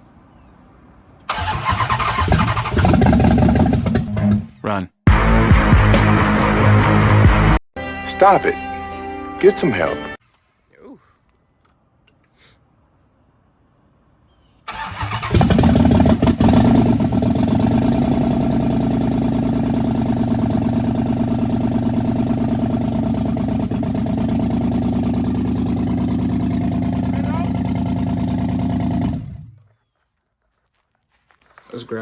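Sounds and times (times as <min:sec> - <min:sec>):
car engine starting and idling: 0:01.2 - 0:04.6, 0:14.7 - 0:29.6
man talking: 0:04.6 - 0:04.9, 0:09.4 - 0:10.1, 0:27.1 - 0:27.8, 0:31.6 - 0:32.0.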